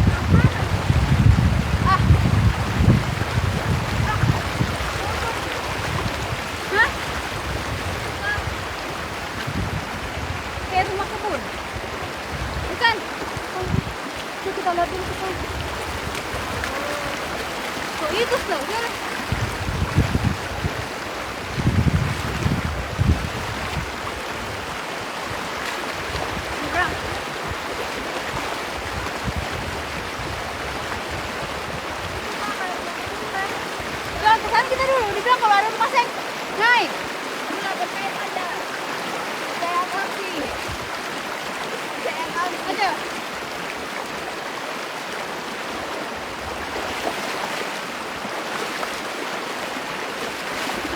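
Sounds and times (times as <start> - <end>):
microphone rumbling bumps: 0.0 - 14.0, 21.5 - 23.9
river water rushing: 0.0 - 50.9.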